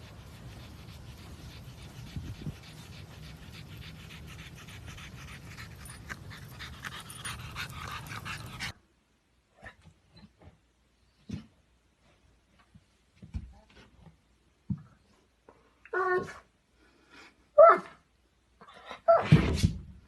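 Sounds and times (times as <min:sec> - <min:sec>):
dog panting: 0:00.0 - 0:08.8.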